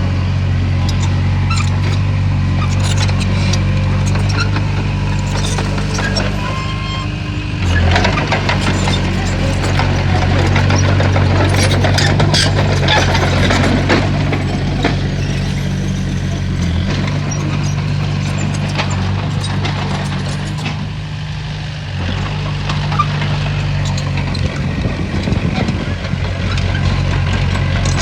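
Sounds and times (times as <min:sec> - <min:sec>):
heavy diesel engine running: 0:00.0 - 0:28.0
metallic clanks and knocks: 0:02.7 - 0:20.8.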